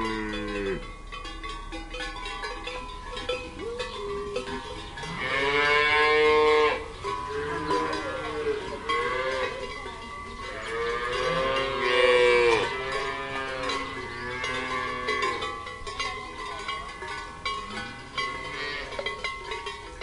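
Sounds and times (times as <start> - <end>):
cow mooing: 0.0 - 0.9, 5.0 - 9.6, 10.4 - 15.4
cowbells clanking: 0.0 - 20.0.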